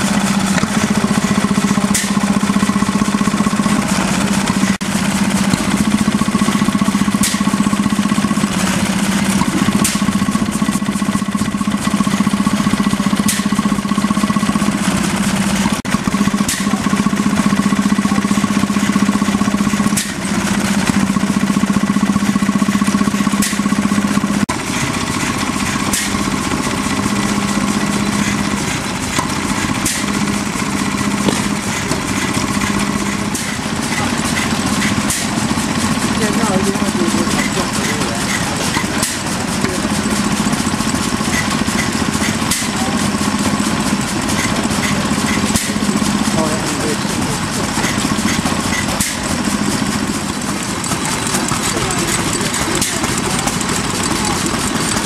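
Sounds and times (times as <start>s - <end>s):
stationary engine running: 0.0s - 55.0s.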